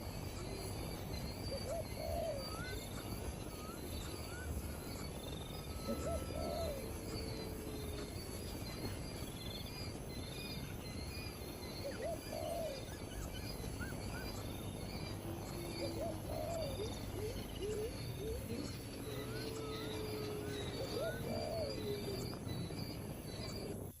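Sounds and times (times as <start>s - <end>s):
low hooting bird call: 0.0s - 10.1s, 10.7s - 23.8s
high insect chirping: 0.0s - 24.0s
higher bird chirps: 0.0s - 24.0s.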